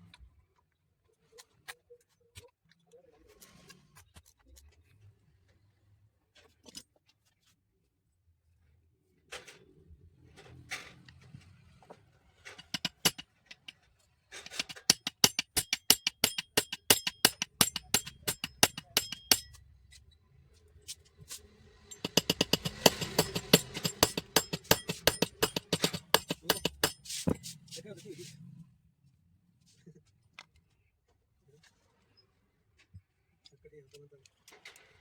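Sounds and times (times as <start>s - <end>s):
sharp metallic clicks of tile cutter: 12.5s - 13.8s, 14.4s - 19.6s, 21.8s - 27.5s.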